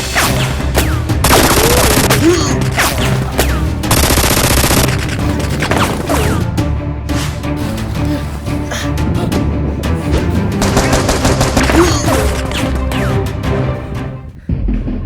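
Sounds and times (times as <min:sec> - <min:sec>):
dramatic background music: 0:00.0 - 0:15.0
automatic gunfire bursts: 0:01.2 - 0:02.1, 0:03.9 - 0:05.8, 0:10.6 - 0:11.9.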